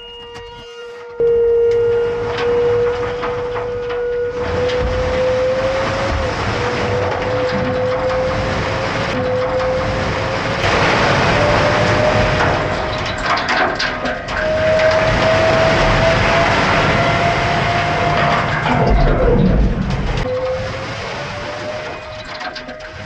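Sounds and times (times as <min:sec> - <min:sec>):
clanks and rattles: 0:00.0 - 0:23.0
vehicle engine droning: 0:00.0 - 0:23.0.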